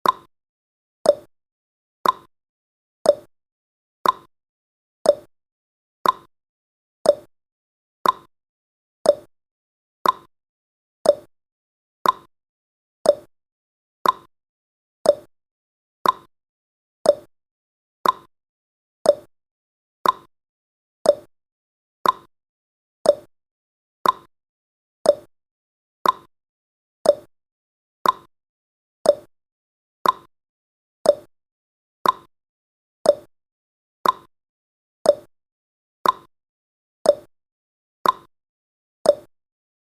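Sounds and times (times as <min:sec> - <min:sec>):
timer ticking: 0:00.0 - 0:00.3, 0:01.1 - 0:01.3, 0:02.0 - 0:02.3, 0:03.1 - 0:03.3, 0:04.0 - 0:04.3, 0:05.1 - 0:05.3, 0:06.0 - 0:06.3, 0:07.1 - 0:07.3, 0:08.0 - 0:08.3, 0:09.0 - 0:09.3, 0:10.0 - 0:10.3, 0:11.0 - 0:11.3, 0:12.0 - 0:12.3, 0:13.0 - 0:13.3, 0:14.0 - 0:14.3, 0:15.0 - 0:15.3, 0:16.0 - 0:16.3, 0:17.0 - 0:17.3, 0:18.0 - 0:18.3, 0:19.0 - 0:19.3, 0:20.0 - 0:20.3, 0:21.0 - 0:21.3, 0:22.0 - 0:22.3, 0:23.0 - 0:23.3, 0:24.0 - 0:24.3, 0:25.0 - 0:25.3, 0:26.0 - 0:26.3, 0:27.0 - 0:27.3, 0:28.0 - 0:28.3, 0:29.0 - 0:29.3, 0:30.0 - 0:30.3, 0:31.0 - 0:31.3, 0:32.0 - 0:32.3, 0:33.0 - 0:33.3, 0:34.0 - 0:34.3, 0:35.1 - 0:35.3, 0:36.0 - 0:36.3, 0:37.1 - 0:37.3, 0:38.0 - 0:38.3, 0:39.1 - 0:39.3.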